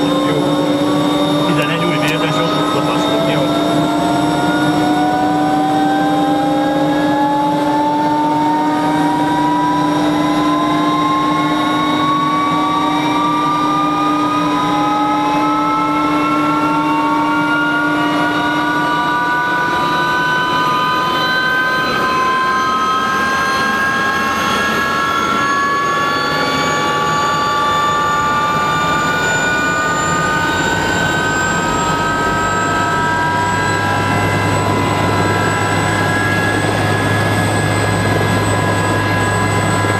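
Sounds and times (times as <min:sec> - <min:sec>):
low hum: 0:25.8 - 0:39.9.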